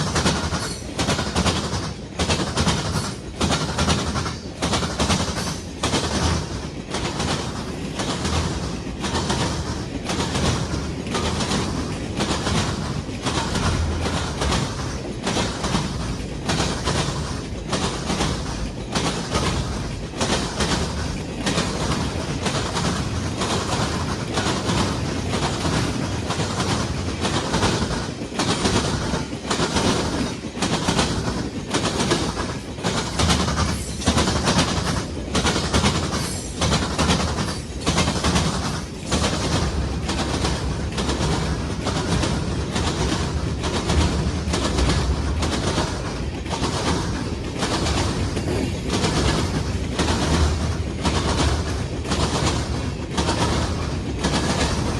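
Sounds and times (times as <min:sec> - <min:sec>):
train wheels clickety-clack: 0:00.0 - 0:54.9.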